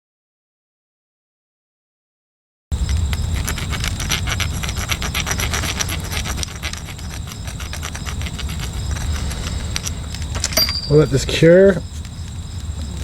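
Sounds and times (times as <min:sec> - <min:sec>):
metal rod scraping concrete: 0:02.8 - 0:13.0.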